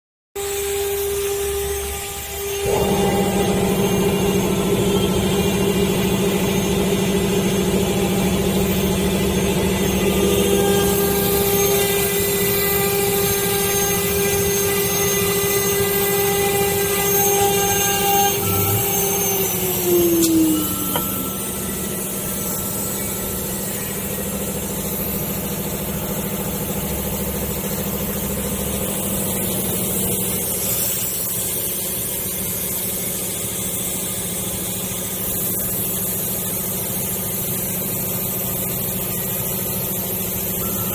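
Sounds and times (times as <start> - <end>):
router spindle whine: 0.4 - 40.9
low motor hum: 1.9 - 30.6.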